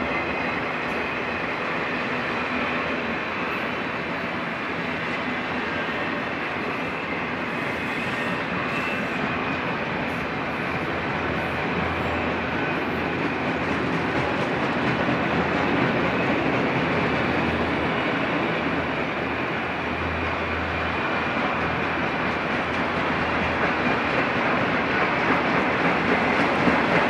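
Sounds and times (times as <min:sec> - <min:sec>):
freight cars rumbling on rails: 0:00.0 - 0:27.0.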